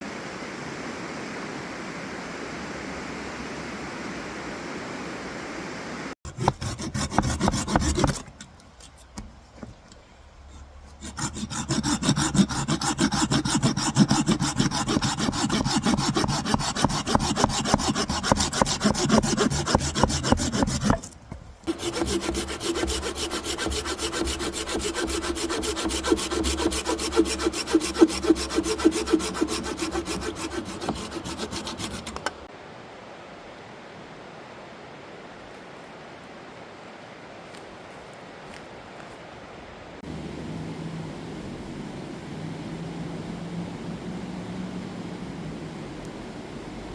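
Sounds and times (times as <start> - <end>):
hand coffee grinder grinding: 10.9 - 32.3.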